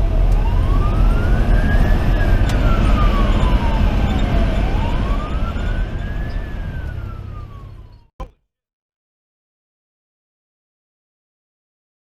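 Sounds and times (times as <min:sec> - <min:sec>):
fire engine siren wailing: 0:00.0 - 0:08.1
diesel engine drone: 0:00.0 - 0:08.3.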